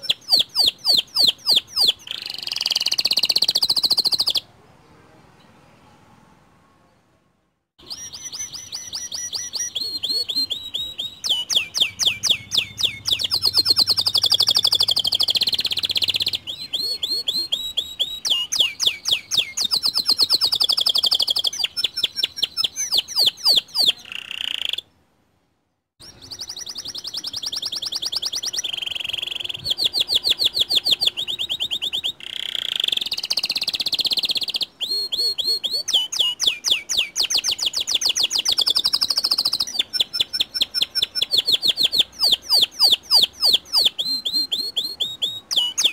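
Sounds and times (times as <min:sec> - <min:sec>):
canary singing trills: 0:00.0 - 0:04.5, 0:07.8 - 0:25.0, 0:26.0 - 0:45.9.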